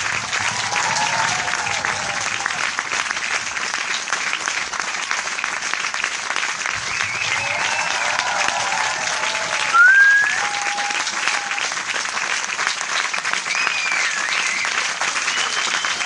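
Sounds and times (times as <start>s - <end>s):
crowd applauding: 0.0s - 16.0s
shrill whistles: 9.7s - 10.9s, 13.5s - 16.0s.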